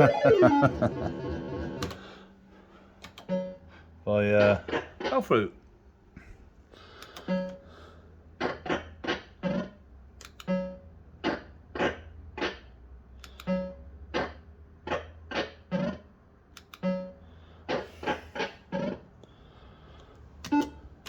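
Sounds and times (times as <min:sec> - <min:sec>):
fruit machine electronic notes: 0:00.0 - 0:01.9
low mains hum: 0:00.0 - 0:08.6.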